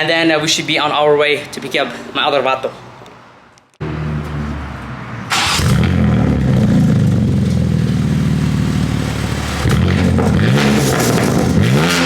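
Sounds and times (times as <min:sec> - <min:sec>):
car engine starting and idling: 0:03.8 - 0:12.0.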